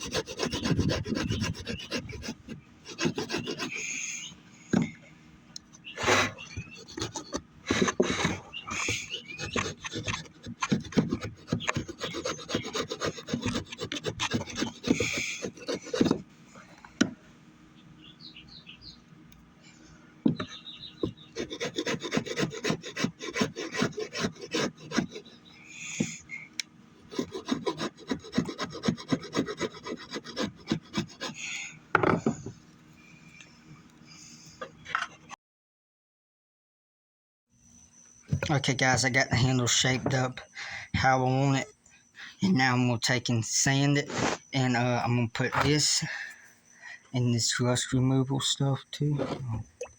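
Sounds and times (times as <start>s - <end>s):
rasp scraping wood: 0.0s - 4.9s, 6.0s - 16.3s, 20.3s - 26.4s, 27.0s - 31.6s, 44.0s - 44.5s, 49.1s - 49.7s.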